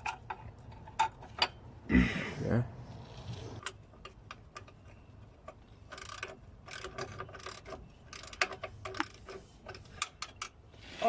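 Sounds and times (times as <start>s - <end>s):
hand tools clicking and rattling: 0.0s - 1.6s, 3.6s - 10.6s.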